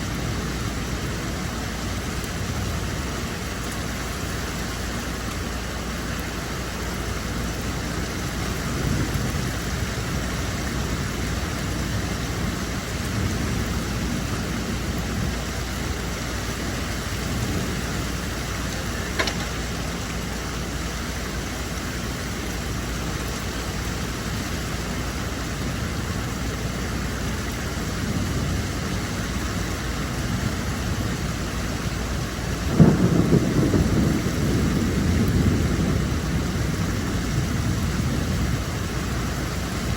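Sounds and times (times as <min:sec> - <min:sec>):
low rumbles: 0:00.0 - 0:25.4
steady rainfall: 0:00.0 - 0:39.9.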